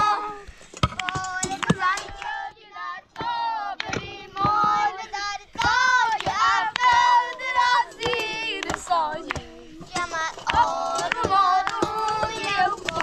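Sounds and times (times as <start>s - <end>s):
children calling sing-song: 0.0s - 13.0s
sharp clicks and knocks: 3.2s - 13.0s.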